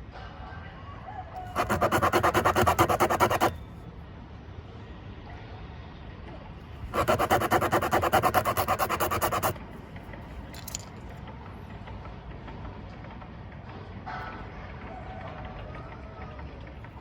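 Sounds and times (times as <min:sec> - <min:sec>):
rapid rhythmic rasping: 0:01.4 - 0:03.6, 0:06.9 - 0:09.6.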